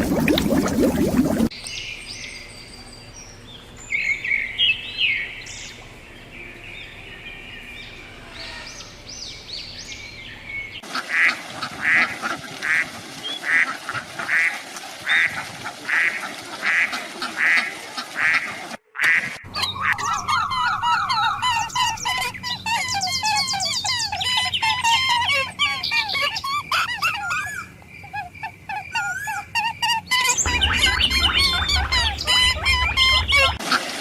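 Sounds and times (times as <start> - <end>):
animal calls: 19.5 - 33.6.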